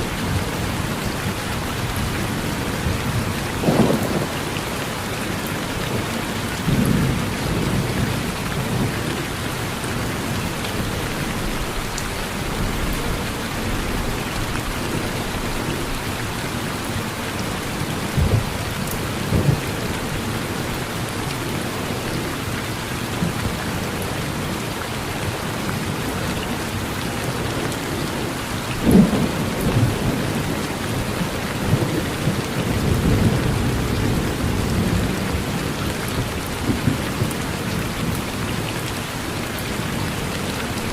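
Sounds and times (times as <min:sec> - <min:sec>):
steady rain falling: 0:00.0 - 0:40.9
thunder rumbling: 0:01.9 - 0:09.1.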